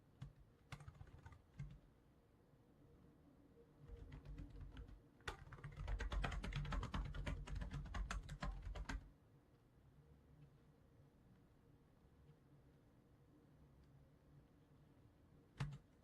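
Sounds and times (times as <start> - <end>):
typing on computer keyboard: 0.2 - 1.8, 3.9 - 9.1, 15.6 - 16.0.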